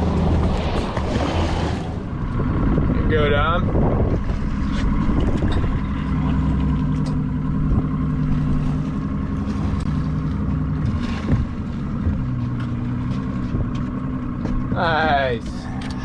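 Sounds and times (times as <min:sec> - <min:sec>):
boat motor running: 0:00.0 - 0:16.0
light knocks on hull: 0:10.8 - 0:12.8.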